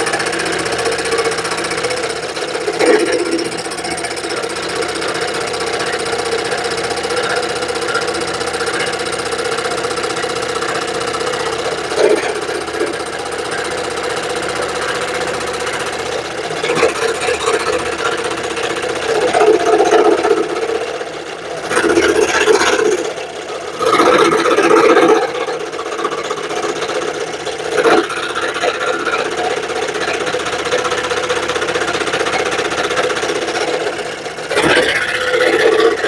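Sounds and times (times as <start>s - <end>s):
scroll saw cutting wood: 32.3s - 36.0s.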